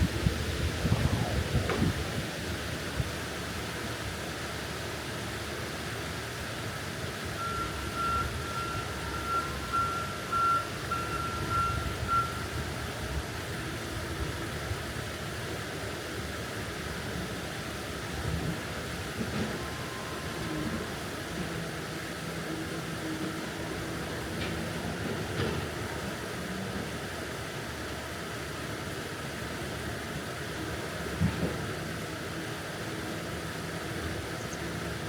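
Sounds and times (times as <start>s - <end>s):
outdoor rumble and hiss: 0.0s - 35.0s
short high beeps: 7.4s - 12.4s.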